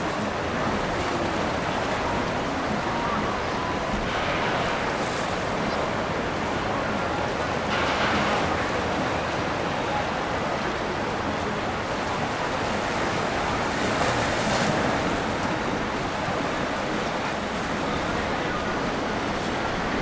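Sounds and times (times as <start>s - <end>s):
rushing water: 0.0s - 20.0s
wind: 0.0s - 20.0s.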